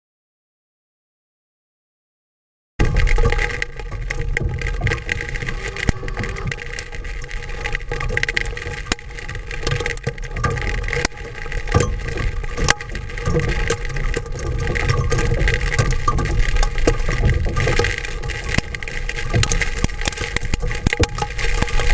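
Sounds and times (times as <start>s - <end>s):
low rumble: 2.8s - 10.0s
hailstones knocking on plastic dome: 2.8s - 21.9s
heavy rain hiss: 4.0s - 21.9s.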